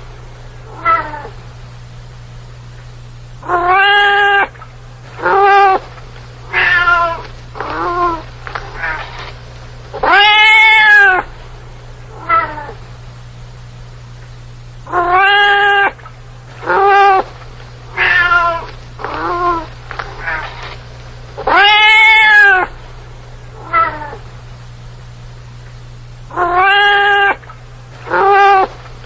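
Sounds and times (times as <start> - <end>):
steady low hum: 0.0 - 29.0
cat meowing: 0.7 - 1.3, 3.4 - 4.5, 5.2 - 5.8, 6.5 - 9.2, 10.0 - 11.3, 12.2 - 12.8, 14.9 - 16.0, 16.6 - 17.3, 18.0 - 20.6, 21.4 - 22.7, 23.6 - 24.2, 26.3 - 27.5, 28.1 - 28.7.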